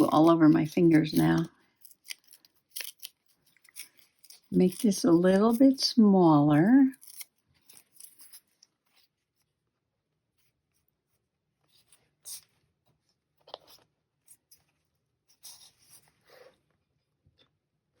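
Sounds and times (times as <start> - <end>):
scissors snipping paper: 0.0 - 5.8, 6.9 - 8.6.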